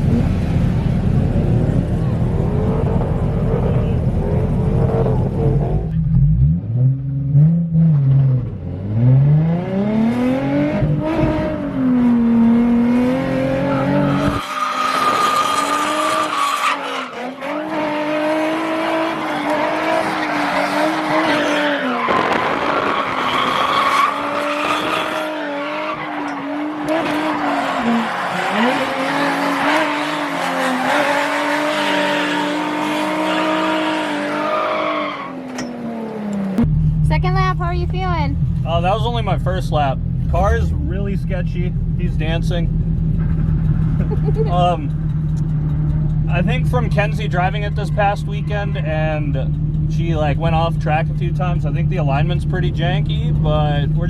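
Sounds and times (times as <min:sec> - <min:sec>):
car engine revving hard: 0:01.3 - 0:36.6
tyres squealing and skidding: 0:13.4 - 0:36.3, 0:47.4 - 0:49.8.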